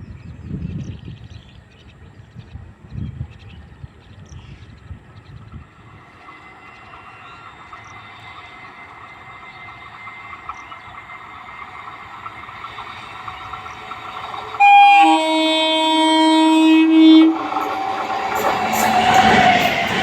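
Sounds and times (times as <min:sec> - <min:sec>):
train running with thin whine: 0:00.3 - 0:20.0
train horn blast: 0:14.6 - 0:17.8.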